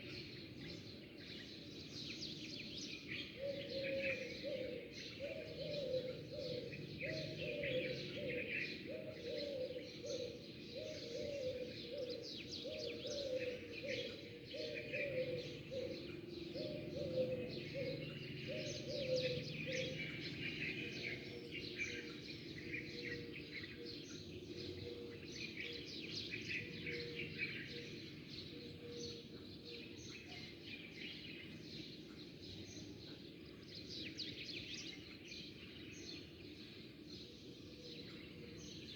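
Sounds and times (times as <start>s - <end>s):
bird hooting call: 9.0s - 20.0s.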